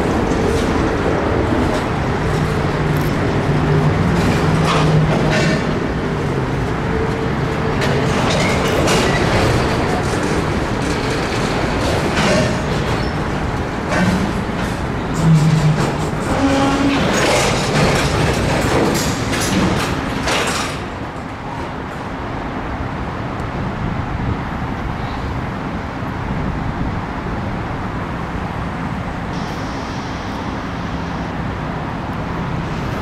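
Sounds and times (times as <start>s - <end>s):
steel wheels and couplers clattering: 7.8s - 21.2s.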